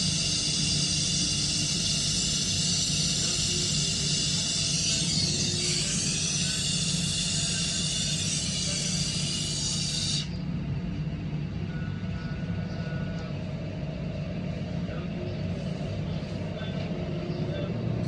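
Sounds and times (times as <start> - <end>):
gas torch hissing: 0.0 - 10.5
steady low hum: 0.0 - 18.0.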